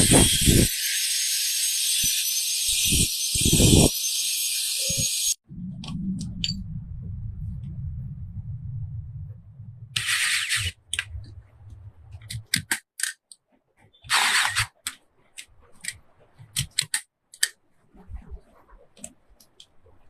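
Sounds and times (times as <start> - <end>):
tools clicking and tapping: 12.2 - 13.4, 14.4 - 17.6
harsh rasping bursts: 14.0 - 14.8.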